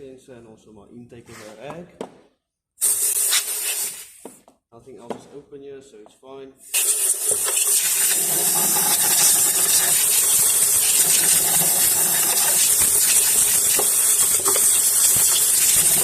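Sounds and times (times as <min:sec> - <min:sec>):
compressed air blow gun hissing: 0:02.8 - 0:04.2, 0:06.6 - 0:16.0.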